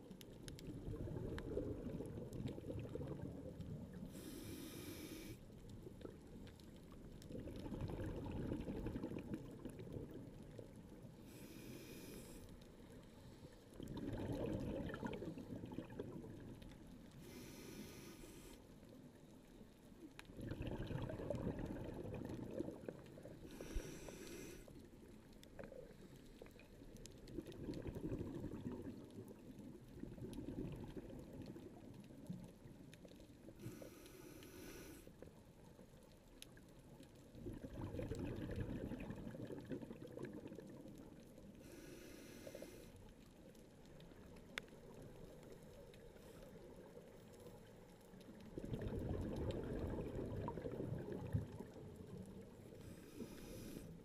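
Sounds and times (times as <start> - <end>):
exhalation bubbles rushing: 0.7 - 3.6, 7.3 - 10.2, 13.8 - 16.5, 20.3 - 23.3, 27.3 - 29.0, 30.0 - 31.6, 37.4 - 40.8, 48.5 - 51.9
regulator inhalation hiss: 4.1 - 5.4, 11.3 - 12.4, 17.2 - 18.6, 23.5 - 24.7, 41.6 - 42.9.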